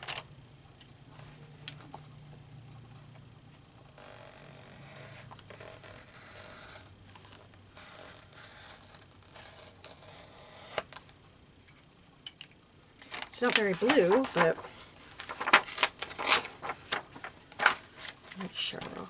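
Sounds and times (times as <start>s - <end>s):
scissors cutting paper: 13.0s - 19.0s.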